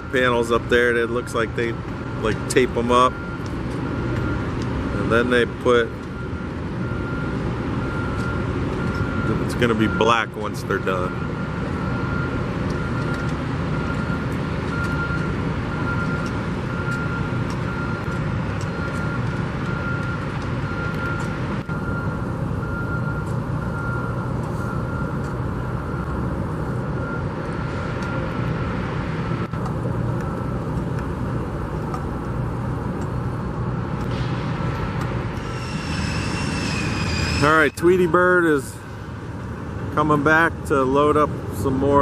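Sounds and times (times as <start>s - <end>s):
heavy construction machinery: 0.0s - 42.0s
road traffic rumble: 0.0s - 42.0s
faint high whine: 35.4s - 38.6s.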